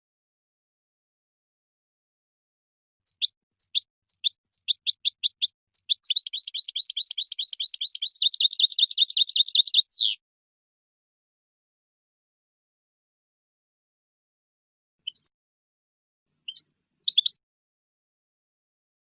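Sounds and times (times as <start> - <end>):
songbird singing: 3.0 - 10.2, 15.0 - 15.3, 16.4 - 17.4.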